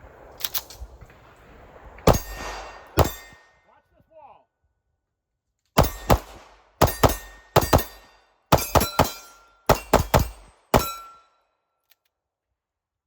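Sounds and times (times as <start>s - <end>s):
pistol shots: 0.1s - 3.5s, 5.8s - 11.2s.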